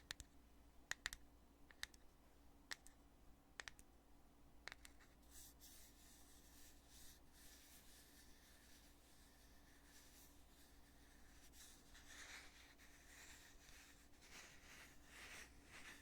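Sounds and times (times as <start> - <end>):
soft rubbing on container: 5.0 - 16.0.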